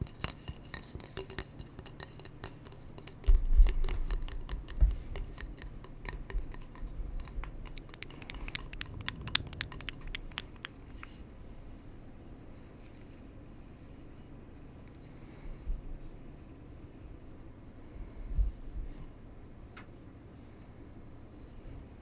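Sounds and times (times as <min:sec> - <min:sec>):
tapping and scratching on hard surface: 0:00.0 - 0:11.2.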